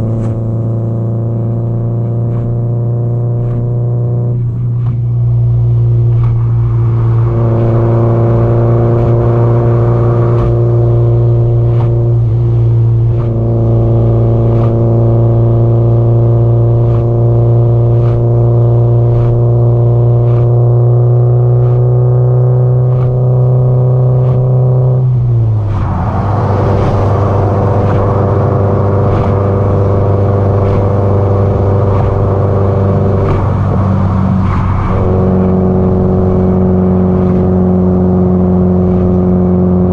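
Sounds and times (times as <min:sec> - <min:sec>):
car engine droning while cruising: 0:00.0 - 0:39.9.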